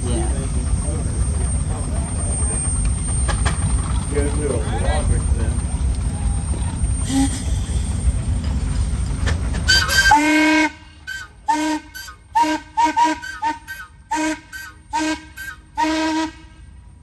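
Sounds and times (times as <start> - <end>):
steam whistle toots: 7.0 - 8.2, 9.7 - 16.7.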